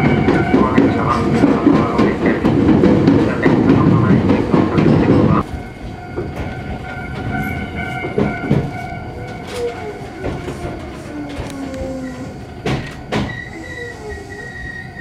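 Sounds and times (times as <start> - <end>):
electric train rumbling on track: 0.0 - 15.0
steady whining tones: 3.3 - 15.0.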